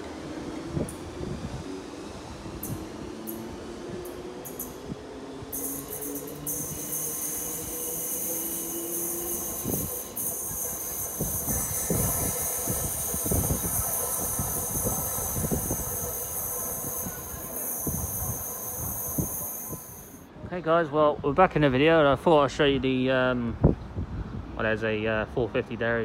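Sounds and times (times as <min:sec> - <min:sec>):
steady high whine: 0:00.0 - 0:20.3
train wheels knocking on rails: 0:05.6 - 0:20.1.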